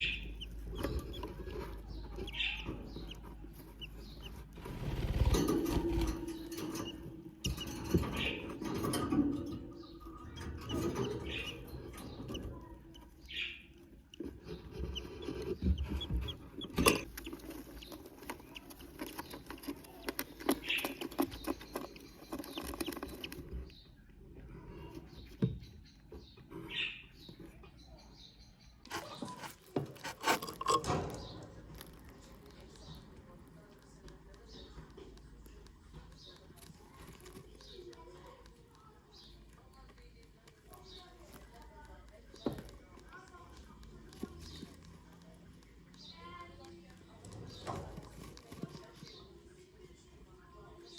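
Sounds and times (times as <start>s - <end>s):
chicks cheeping: 0.0s - 30.2s
rustling and scratching in nest: 0.0s - 50.9s.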